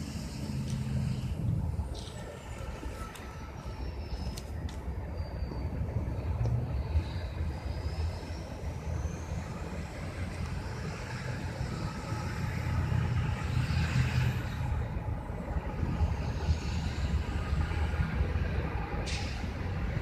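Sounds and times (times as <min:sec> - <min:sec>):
faint high wheel squeal: 0:00.0 - 0:14.9
freight train rumbling by: 0:00.0 - 0:20.0.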